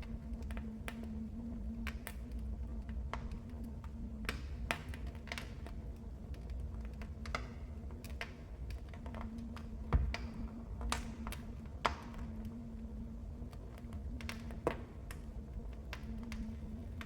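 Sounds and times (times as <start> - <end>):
faint hum: 0.0 - 17.0
wood fire crackling: 0.0 - 17.0.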